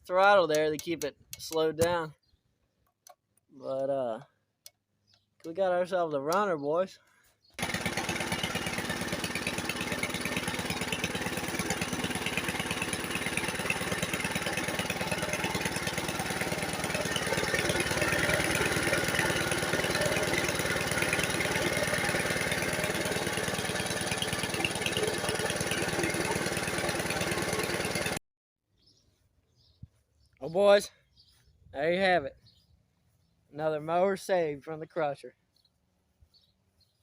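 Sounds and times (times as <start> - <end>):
lawn mower engine running fast: 7.6 - 28.2.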